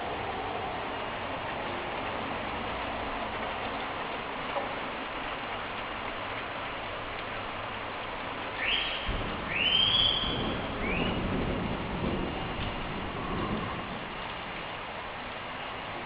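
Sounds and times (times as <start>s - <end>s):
rain hissing: 0.0s - 16.0s
bird whistled calls: 8.6s - 11.2s
low thunder rumble: 8.6s - 15.4s.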